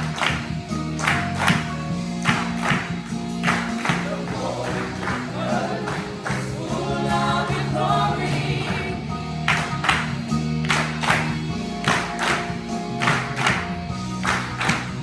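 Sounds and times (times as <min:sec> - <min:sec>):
musical accompaniment chords: 0:00.0 - 0:15.0
gospel choir singing: 0:02.4 - 0:09.4.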